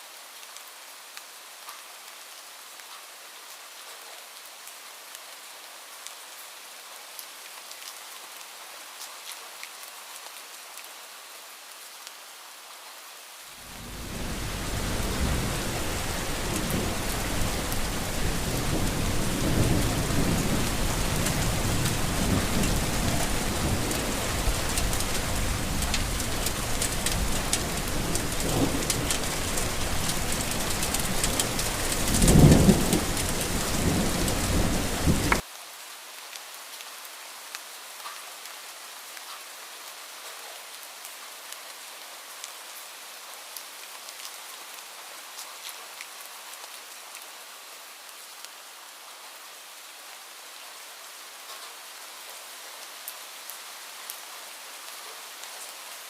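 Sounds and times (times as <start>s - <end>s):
rain falling: 0.0s - 56.0s
rolling thunder: 13.8s - 35.4s.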